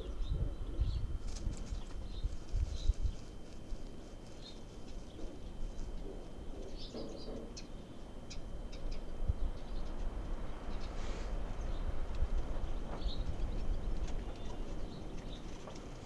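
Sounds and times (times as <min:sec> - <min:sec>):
birds chirping: 0:00.0 - 0:03.4, 0:04.1 - 0:10.0, 0:10.6 - 0:16.0
low steady rumble: 0:00.0 - 0:04.0.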